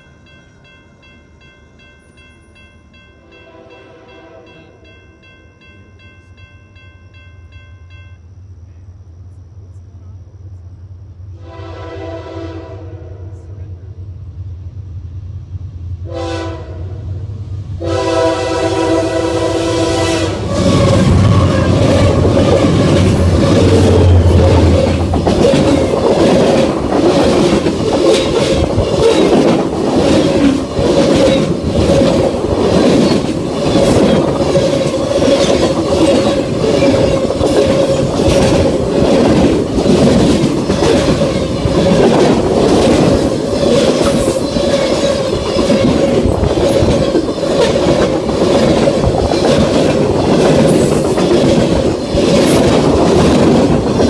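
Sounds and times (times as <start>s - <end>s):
diesel locomotive rumble: 8.3s - 54.0s
wheels clicking over rail joints: 21.0s - 54.0s.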